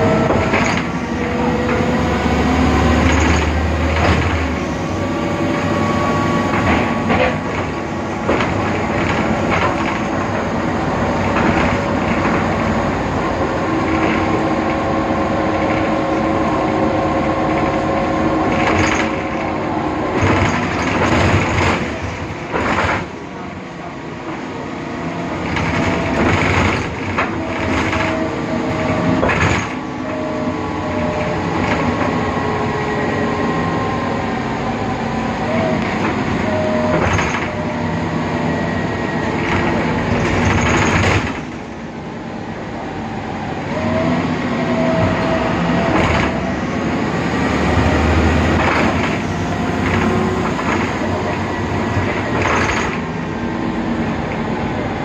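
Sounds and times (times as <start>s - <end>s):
rattles and knocks from bus body: 0.0s - 4.9s, 6.2s - 23.4s, 25.4s - 30.0s, 31.0s - 32.4s, 35.7s - 38.1s, 39.2s - 41.8s, 44.9s - 46.6s, 47.6s - 53.2s
bus diesel engine running: 0.0s - 55.0s.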